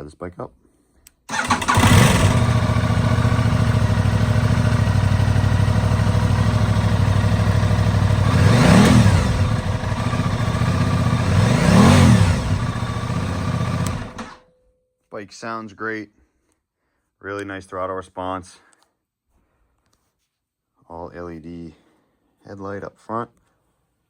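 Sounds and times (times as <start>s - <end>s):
motorcycle engine idling: 1.3s - 14.4s
motorcycle throttle blips: 1.3s - 14.4s.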